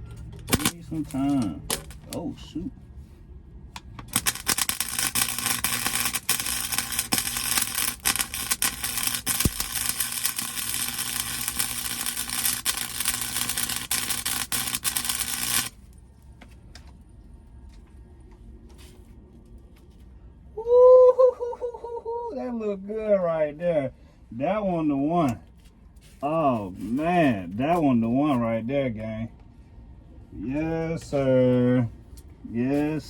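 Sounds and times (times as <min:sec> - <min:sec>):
welding arc crackling: 0:00.5 - 0:02.1, 0:04.0 - 0:15.8.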